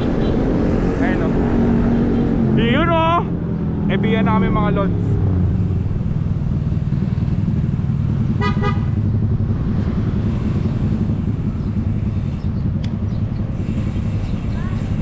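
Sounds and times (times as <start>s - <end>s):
road traffic: 0.0s - 15.0s
wind rumble: 0.0s - 15.0s
vehicle horn toot: 8.4s - 9.0s.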